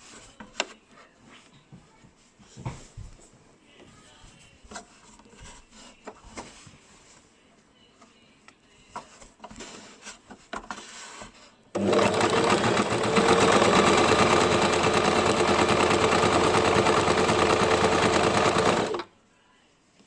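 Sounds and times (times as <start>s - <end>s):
sewing machine stitching: 11.8s - 19.1s.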